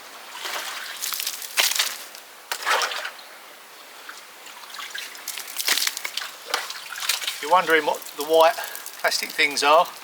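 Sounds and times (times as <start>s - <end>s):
water sloshing: 4.1s - 10.0s.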